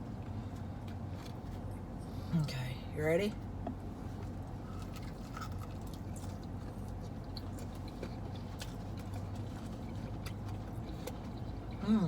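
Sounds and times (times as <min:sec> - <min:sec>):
steady low hum: 0:00.0 - 0:12.0
chewing fried chicken: 0:04.1 - 0:12.0.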